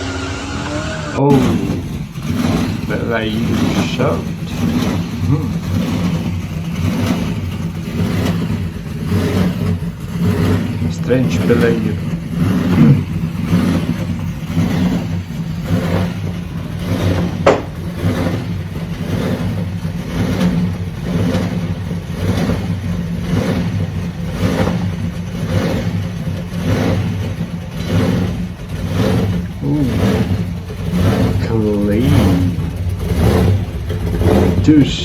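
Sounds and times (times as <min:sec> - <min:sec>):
car engine pulsing low note: 0:00.0 - 0:35.0.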